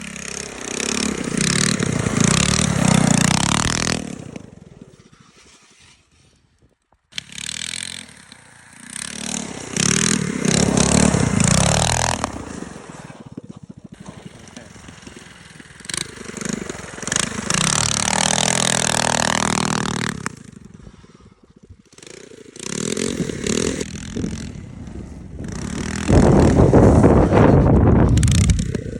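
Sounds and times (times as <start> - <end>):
mini bike engine revving: 0.0 - 6.5, 7.1 - 28.9
bike scraping and clattering on ice: 0.0 - 21.2.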